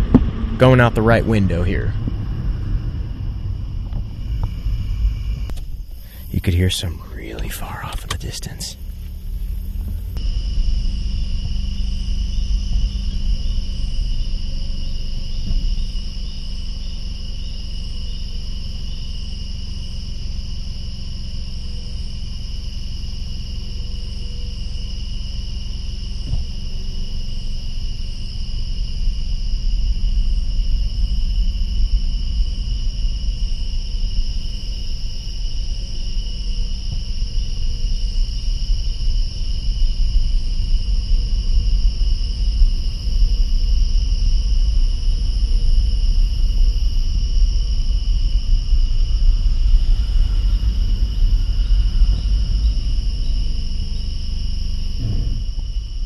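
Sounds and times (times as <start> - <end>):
car engine rumble: 0.0 - 56.0
crickets and insects trilling: 0.0 - 56.0.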